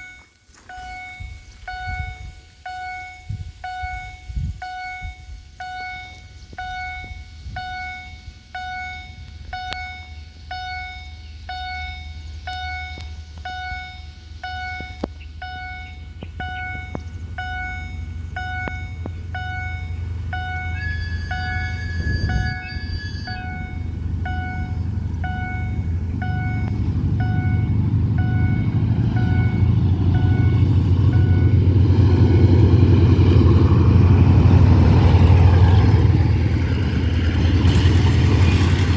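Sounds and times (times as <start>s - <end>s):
diesel train engine rumble: 0.0s - 38.9s
level crossing warning bell: 0.0s - 38.9s
train horn: 19.9s - 27.8s.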